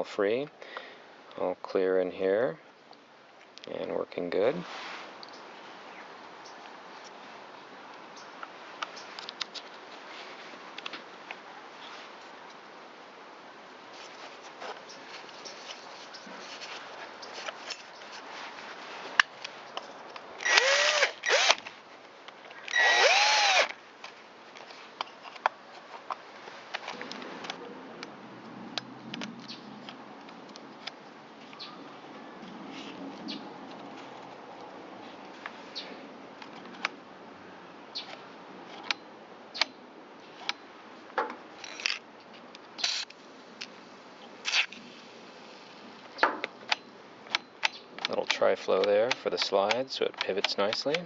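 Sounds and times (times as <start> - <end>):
cordless drill motor whirring: 20.4 - 21.7, 22.7 - 23.7
clicks and taps of parts: 46.2 - 51.0.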